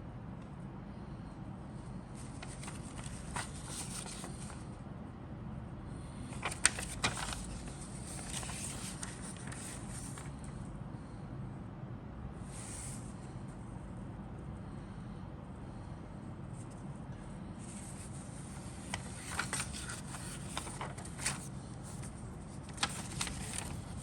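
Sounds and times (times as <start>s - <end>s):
steady low hum: 0.0s - 24.0s
rustling of parts and papers: 1.8s - 4.8s, 6.0s - 10.6s, 16.5s - 24.0s.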